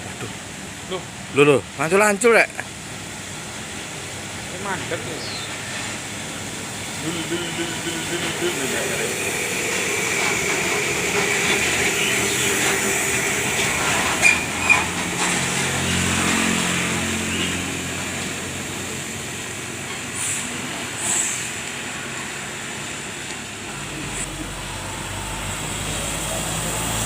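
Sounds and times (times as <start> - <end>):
heavy truck traffic passing: 0.0 - 27.0
truck diesel engine droning: 0.0 - 27.0
short high squeaks: 11.2 - 16.0
brief hissing bursts: 20.2 - 21.6.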